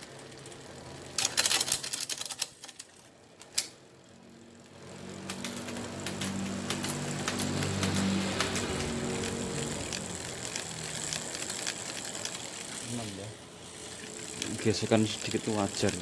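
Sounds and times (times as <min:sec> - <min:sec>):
bicycle chain and wheel humming: 0:00.0 - 0:16.0
freewheel ratchet ticking: 0:04.7 - 0:16.0.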